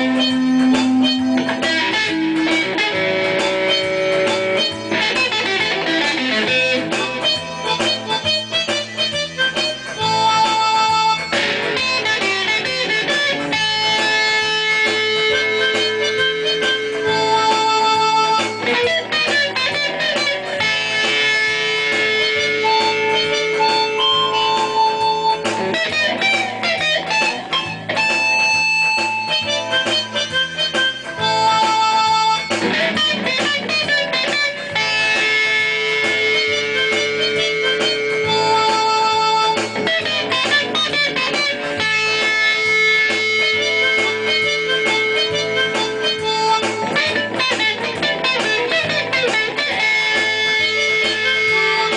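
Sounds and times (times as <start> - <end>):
instrumental guitar music: 0.0 - 51.9.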